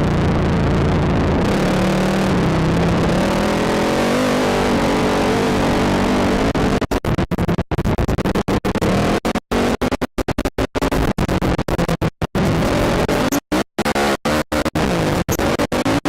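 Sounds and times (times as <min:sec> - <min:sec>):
atv engine: 0:00.0 - 0:06.8.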